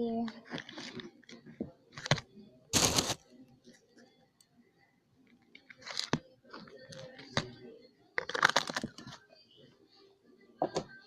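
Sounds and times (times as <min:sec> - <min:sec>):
packaging crinkling and crunching: 0:02.8 - 0:03.2, 0:08.2 - 0:09.0.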